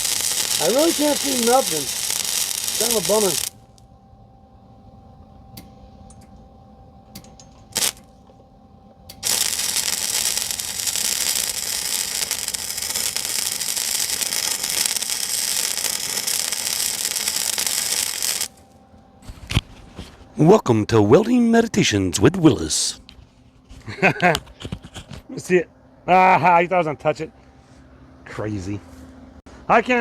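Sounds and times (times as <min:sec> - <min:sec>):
arc welder crackling hiss: 0:00.0 - 0:03.8, 0:07.6 - 0:08.1, 0:09.1 - 0:18.7.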